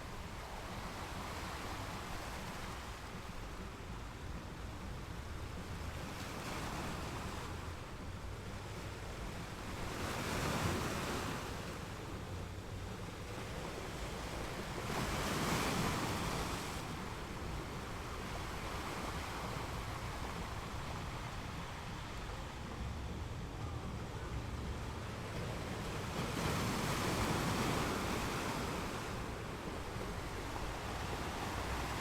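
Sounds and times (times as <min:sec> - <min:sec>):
wind rumble on microphone: 0:00.0 - 0:32.0
small waves breaking on beach: 0:05.5 - 0:32.0.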